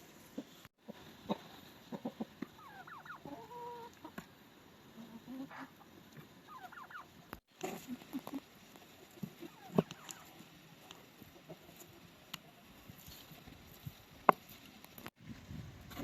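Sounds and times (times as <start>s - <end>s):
chickens clucking and calling: 0.0s - 12.7s.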